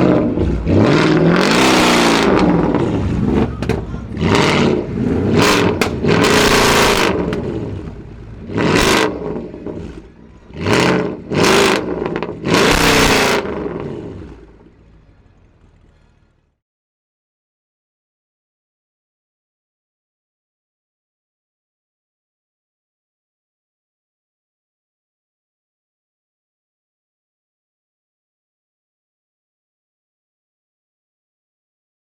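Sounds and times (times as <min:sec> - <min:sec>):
car engine revving in blips: 0:00.0 - 0:16.6.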